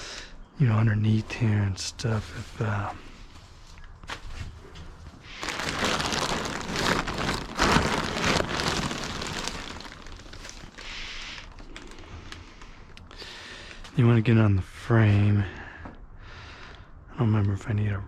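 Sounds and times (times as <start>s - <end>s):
items scraping and clattering in cargo box: 5.4s - 10.9s.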